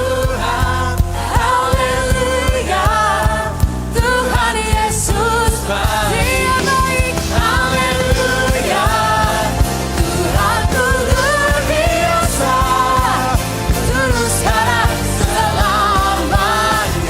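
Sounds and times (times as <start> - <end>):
band playing: 0.0 - 17.0
drum kit: 0.0 - 17.0.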